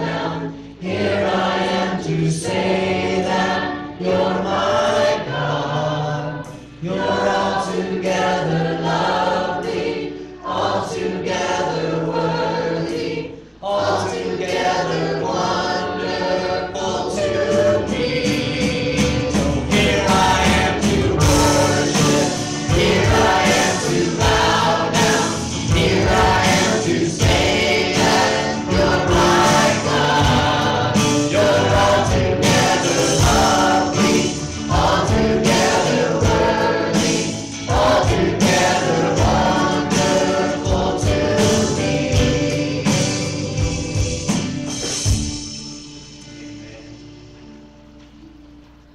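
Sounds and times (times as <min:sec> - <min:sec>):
choir singing worship song: 0:00.0 - 0:47.1
musical accompaniment: 0:00.0 - 0:48.9
steady beat: 0:17.3 - 0:45.8.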